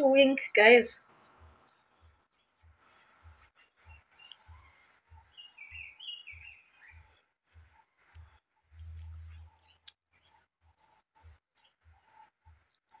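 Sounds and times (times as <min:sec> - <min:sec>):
birds chirping: 0:00.6 - 0:08.4.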